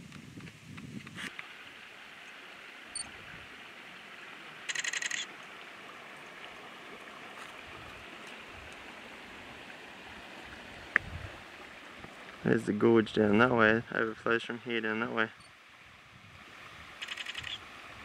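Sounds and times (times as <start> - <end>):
faint steady hiss: 0.0 - 18.0
loud buzzy bird call: 17.0 - 17.6.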